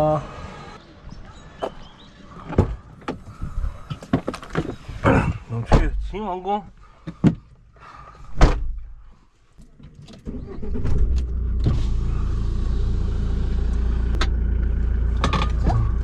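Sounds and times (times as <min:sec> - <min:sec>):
thud: 0:08.3 - 0:08.8
engine starting and running: 0:10.1 - 0:16.0.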